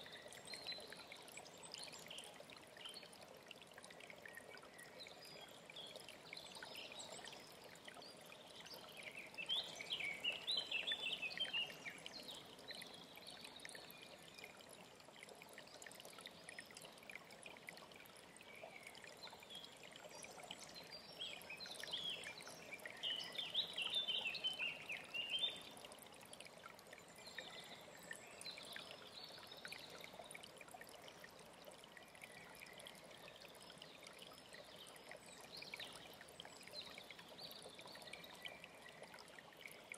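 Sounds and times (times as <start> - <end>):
stream running: 0.0 - 39.9
songbird chirping: 18.6 - 25.8.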